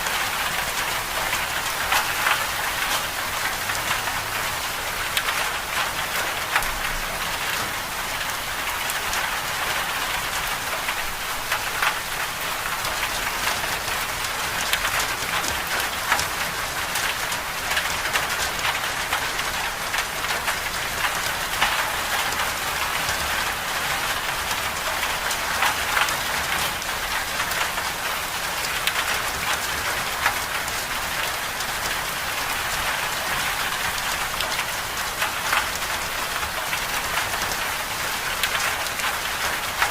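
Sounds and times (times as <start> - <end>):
raindrops ticking on surface: 0.0 - 39.9.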